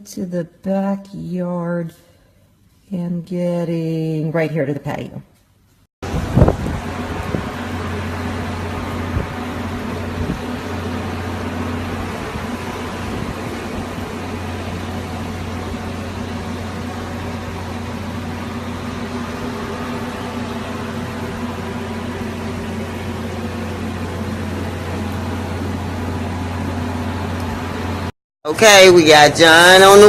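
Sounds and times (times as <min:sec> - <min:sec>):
low machine hum: 0:06.0 - 0:30.0.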